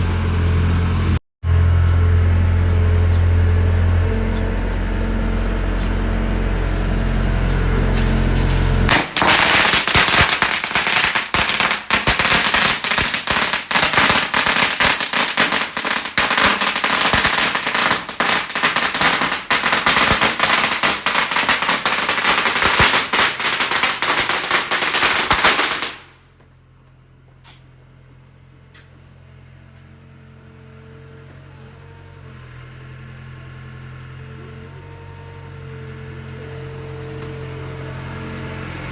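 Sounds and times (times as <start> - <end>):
firecrackers crackling: 5.8 - 26.4.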